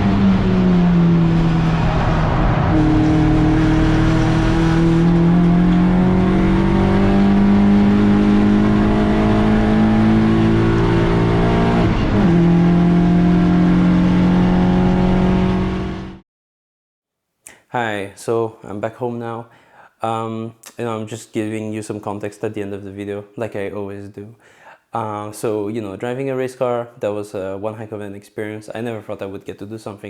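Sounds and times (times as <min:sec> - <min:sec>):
race car engine pulling hard: 0:00.0 - 0:16.2.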